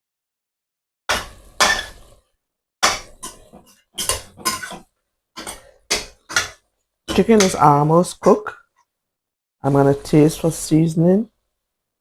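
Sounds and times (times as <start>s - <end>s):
pot and lid clanking: 1.1s - 2.2s, 2.8s - 7.6s.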